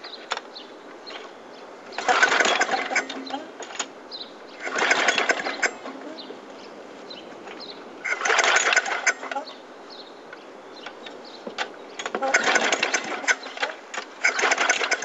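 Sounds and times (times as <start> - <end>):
lawn mower recoil starter cranking: 1.9 - 6.2, 8.0 - 9.5, 10.8 - 15.0.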